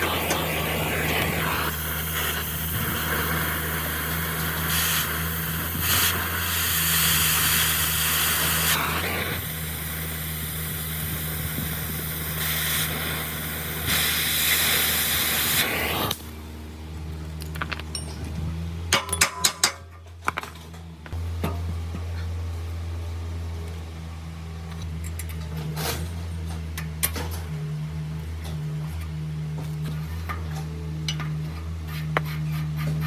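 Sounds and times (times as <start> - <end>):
hissing spray: 0.0 - 16.3
motor hum: 0.0 - 33.0.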